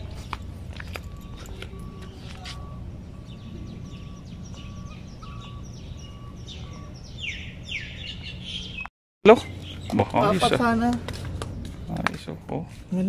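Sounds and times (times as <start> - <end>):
low outdoor rumble: 0.0 - 8.8
small birds chirping: 0.0 - 13.0.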